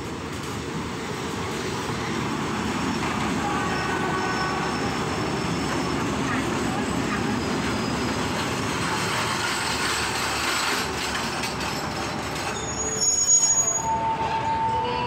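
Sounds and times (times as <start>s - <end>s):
train wheels rumbling on rail: 0.0s - 15.0s
brief high squeal: 12.5s - 14.9s.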